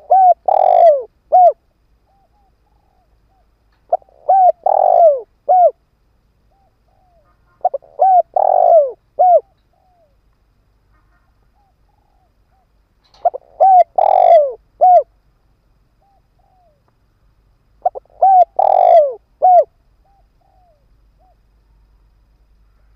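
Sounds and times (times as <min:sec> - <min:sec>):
dove cooing: 0:00.0 - 0:05.8, 0:06.5 - 0:10.2, 0:11.5 - 0:15.2, 0:16.0 - 0:16.8, 0:17.8 - 0:21.5.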